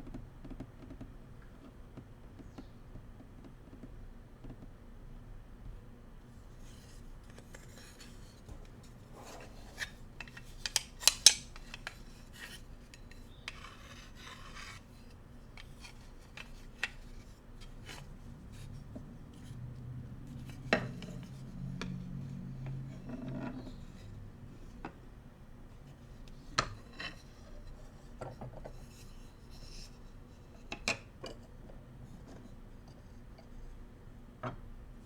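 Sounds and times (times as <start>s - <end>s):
bamboo utensils scraping and rubbing: 6.6s - 19.7s
bamboo utensils tapping and clacking: 9.3s - 12.0s.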